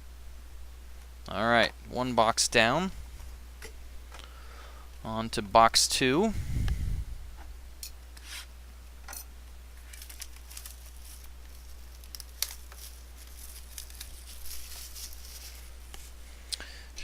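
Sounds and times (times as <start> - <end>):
low electrical hum: 0.0 - 17.0
packaging crinkling and tearing: 9.8 - 16.0.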